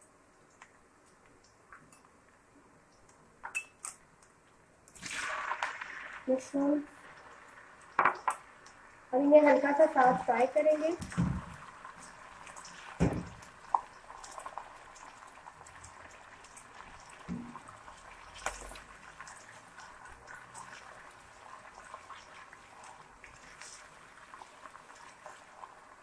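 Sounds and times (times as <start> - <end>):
mushrooms sizzling in hot oil: 4.9 - 26.0.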